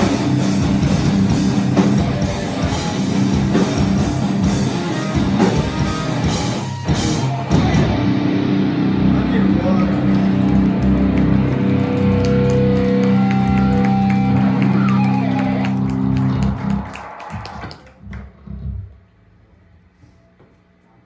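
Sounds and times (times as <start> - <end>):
electric guitar and bass chord: 0.0 - 16.8
low bass notes: 0.0 - 19.1.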